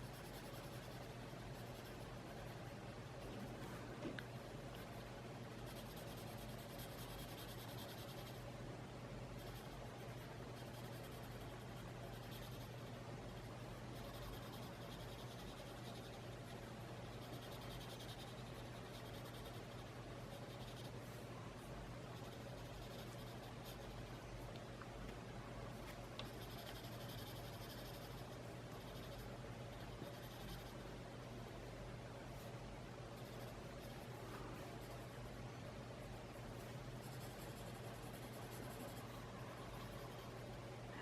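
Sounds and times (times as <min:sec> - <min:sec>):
pencil scratching on paper: 0:00.0 - 0:03.8, 0:05.6 - 0:08.5, 0:09.4 - 0:21.2, 0:22.1 - 0:24.1, 0:25.8 - 0:30.8, 0:33.2 - 0:35.2, 0:36.6 - 0:40.6
steady low hum: 0:00.0 - 0:41.0.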